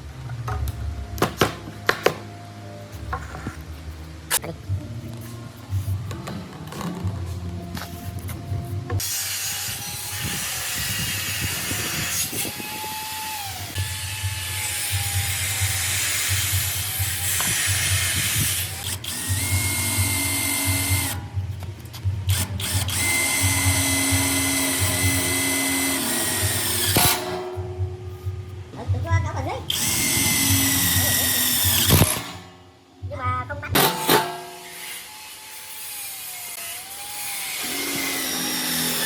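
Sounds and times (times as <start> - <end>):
power tool whining: 9.0 - 21.2, 22.3 - 27.3, 29.7 - 32.4, 34.5 - 39.0.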